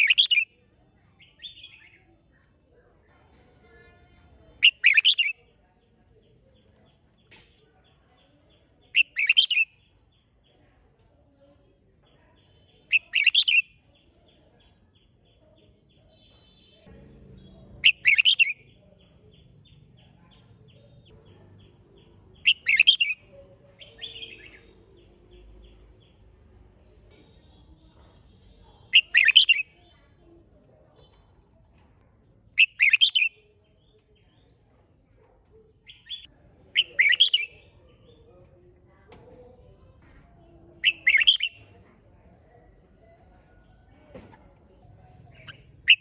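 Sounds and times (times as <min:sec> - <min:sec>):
bulbul singing: 0:00.0 - 0:00.6, 0:04.6 - 0:05.5, 0:08.5 - 0:10.2, 0:12.4 - 0:30.0, 0:31.0 - 0:34.7, 0:35.7 - 0:46.0.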